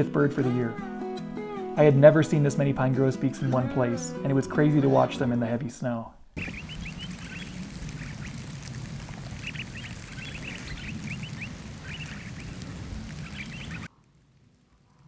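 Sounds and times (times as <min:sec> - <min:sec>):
flock of birds whistling calls: 0:06.4 - 0:13.9.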